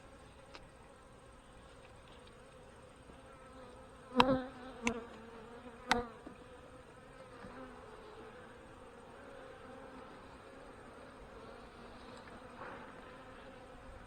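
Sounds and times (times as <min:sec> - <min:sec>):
bees buzzing: 0:03.4 - 0:14.0.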